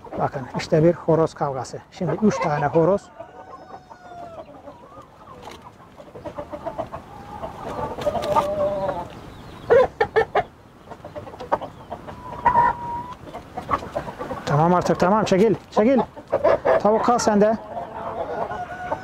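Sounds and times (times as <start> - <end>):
chickens clucking: 0.0 - 19.0
roosters scuffling: 0.0 - 19.0.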